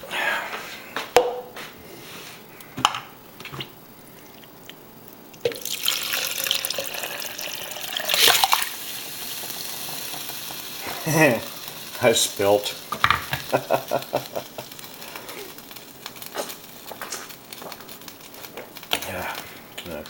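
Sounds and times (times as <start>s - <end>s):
watery hiss of liquid: 5.6s - 19.7s
cookware knocking and clinking: 12.9s - 13.4s.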